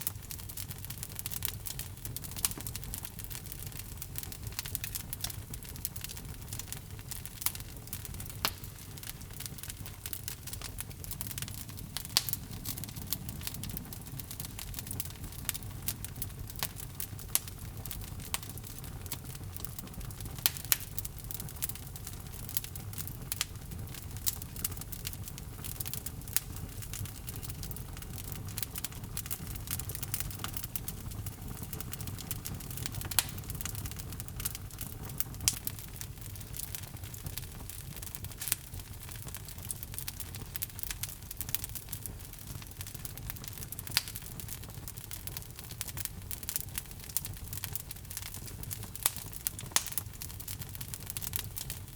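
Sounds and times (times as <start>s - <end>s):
fire crackles and pops: 0.0s - 51.9s
low rumble of flames: 0.0s - 51.9s.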